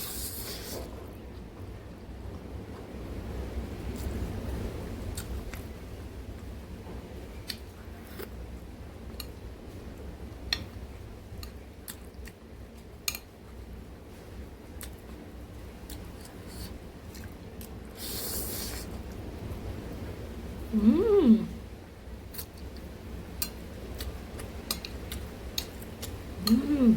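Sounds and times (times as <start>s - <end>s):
wet mouth clicks and chewing: 22.3s - 26.6s.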